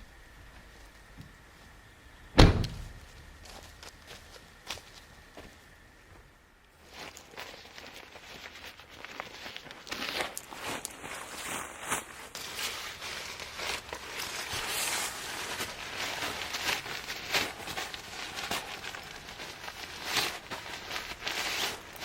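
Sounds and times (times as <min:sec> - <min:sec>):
rustling: 0:06.8 - 0:22.0.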